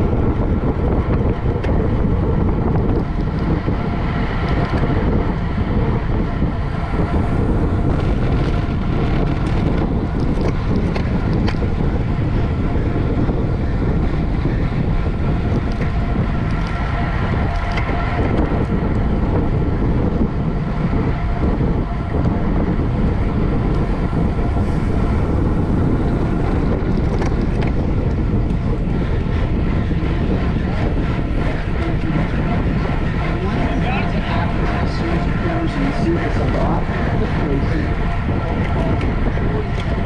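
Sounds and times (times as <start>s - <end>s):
wind rushing over microphone: 0.0s - 40.0s.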